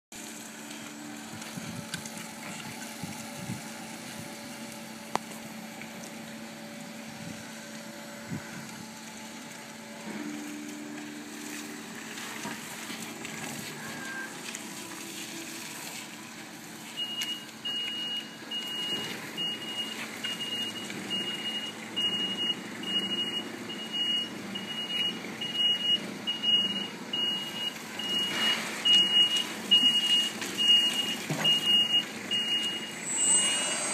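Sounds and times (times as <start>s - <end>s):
reversing alarm beeping: 13.7s - 14.4s, 17.0s - 33.9s
electric forklift humming: 26.6s - 33.9s.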